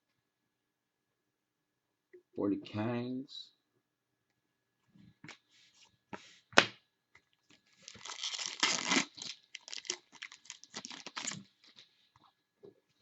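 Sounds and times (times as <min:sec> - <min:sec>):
packaging crinkling and tearing: 0:07.8 - 0:11.8
packaging clicks: 0:07.9 - 0:11.4.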